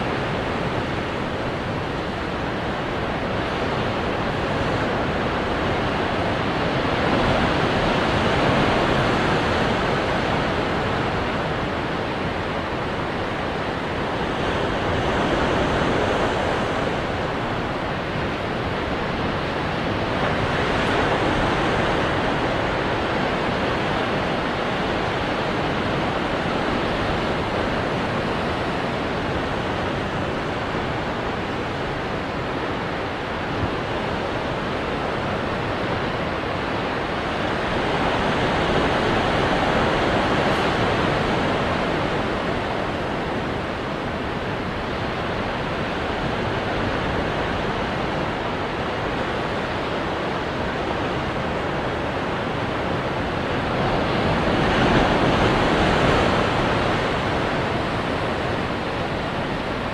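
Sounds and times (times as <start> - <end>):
ocean waves breaking on rocks: 13.2 - 59.9.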